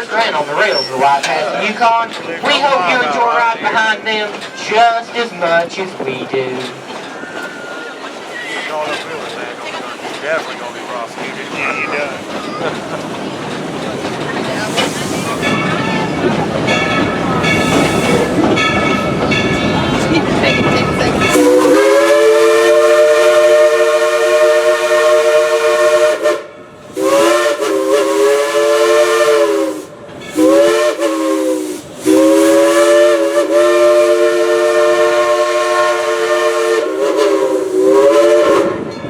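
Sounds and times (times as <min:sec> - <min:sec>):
steam locomotive whistle blasts: 0:21.3 - 0:38.9.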